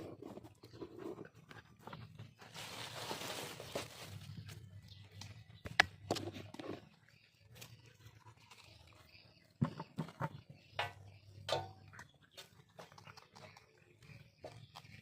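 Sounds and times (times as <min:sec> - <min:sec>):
dogs chewing and crunching: 0:06.3 - 0:09.6, 0:11.7 - 0:15.0.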